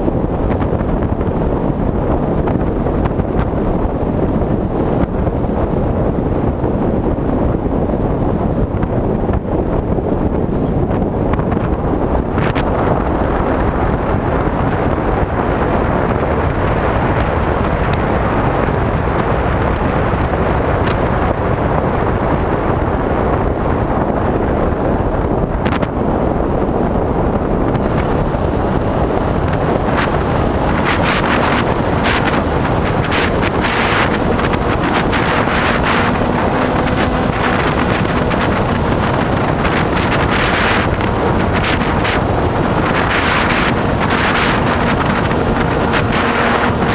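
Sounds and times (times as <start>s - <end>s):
wind buffeting camera: 0.0s - 46.9s
model plane motor and propeller: 27.7s - 46.9s.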